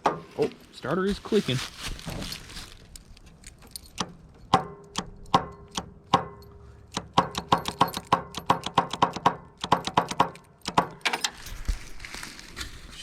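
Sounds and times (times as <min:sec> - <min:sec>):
starter clicking: 0:03.0 - 0:11.4.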